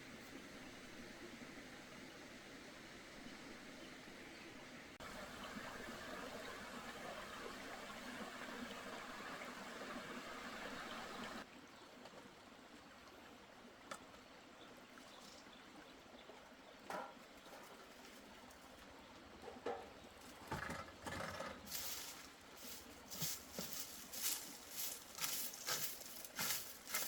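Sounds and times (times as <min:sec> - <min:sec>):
running water rushing: 0:05.0 - 0:11.6, 0:21.6 - 0:27.0.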